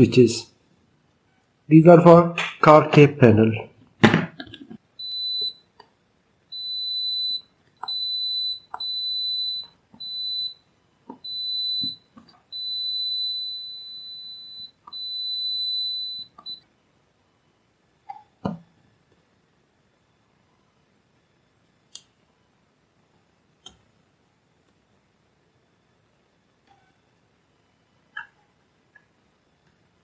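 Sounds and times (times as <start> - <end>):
electronic beeper tone: 12.6 - 16.6.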